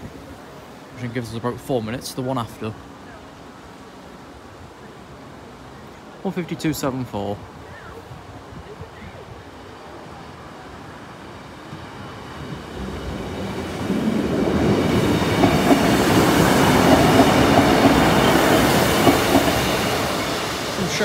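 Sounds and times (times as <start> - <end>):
diesel train engine: 10.7 - 21.0
train wheels on rails: 11.4 - 21.0.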